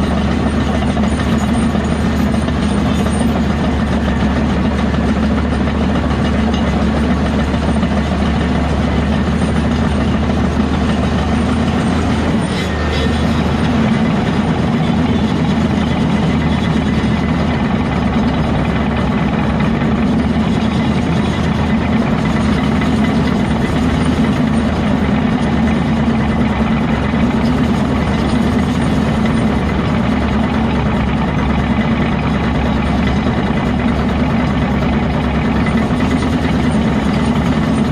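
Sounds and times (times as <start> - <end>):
heavy diesel engine running: 0.0 - 37.9.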